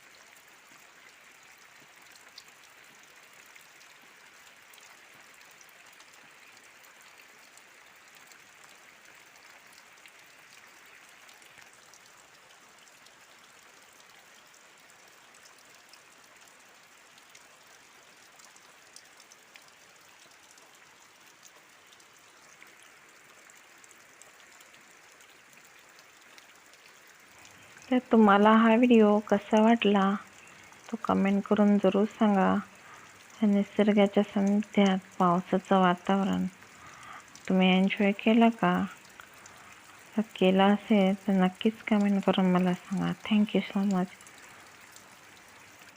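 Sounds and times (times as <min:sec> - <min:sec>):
light rain hissing: 0:00.0 - 0:45.9
raindrops ticking: 0:00.0 - 0:45.9.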